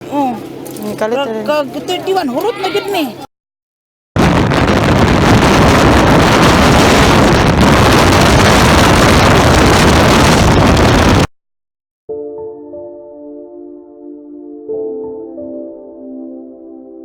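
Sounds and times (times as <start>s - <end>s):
wind rushing over microphone: 4.2s - 11.3s.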